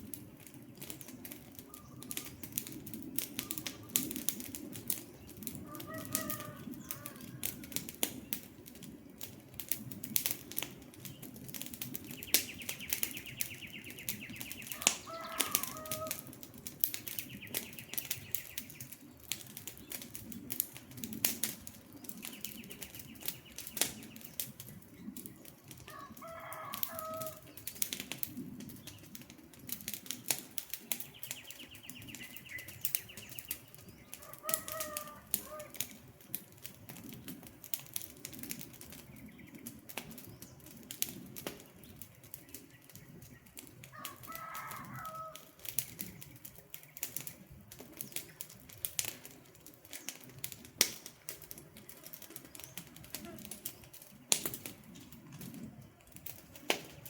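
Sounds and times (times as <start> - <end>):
campfire crackling and popping: 0.0 - 57.0
bird call: 12.2 - 16.2.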